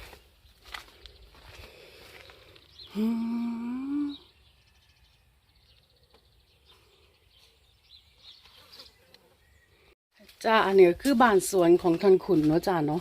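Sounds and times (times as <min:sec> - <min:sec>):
birds chirping: 0:00.0 - 0:13.0
person humming: 0:02.9 - 0:04.4.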